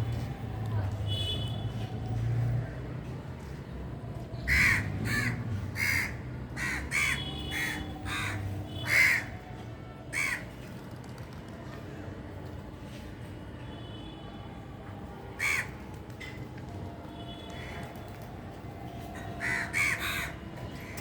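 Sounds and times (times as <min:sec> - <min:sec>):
crow cawing: 0:04.5 - 0:09.3, 0:15.4 - 0:15.7, 0:19.4 - 0:20.4.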